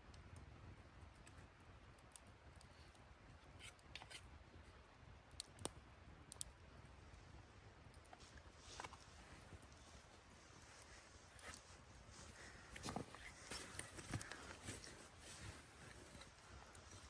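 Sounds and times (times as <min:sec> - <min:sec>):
faint clicks: 0:05.3 - 0:06.6.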